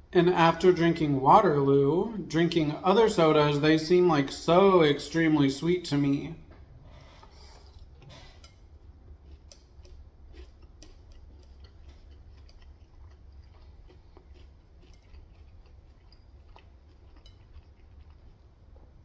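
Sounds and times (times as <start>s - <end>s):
low steady hum: 0.0s - 19.0s
chewing crunches and mouth clicks: 6.6s - 19.0s.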